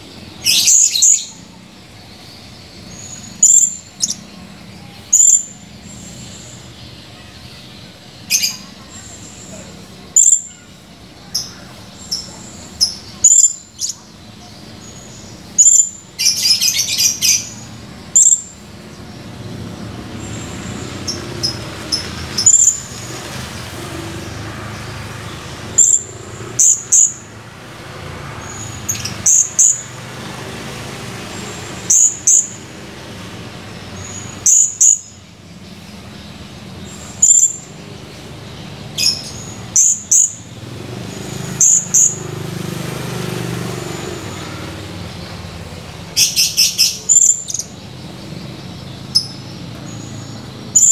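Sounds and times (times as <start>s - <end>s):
parrot high-pitched chirps: 0.4s - 1.4s, 2.9s - 4.2s, 10.1s - 14.2s, 15.6s - 18.6s, 21.4s - 22.9s, 28.5s - 29.8s, 31.9s - 32.6s, 37.2s - 37.7s, 39.0s - 40.4s, 41.6s - 42.2s, 46.2s - 47.7s
parrot chattering: 46.2s - 47.7s.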